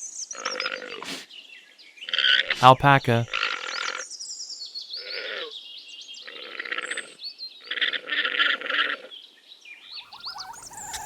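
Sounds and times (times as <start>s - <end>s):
small birds chirping: 9.9s - 11.0s
alpaca calling: 10.0s - 11.0s.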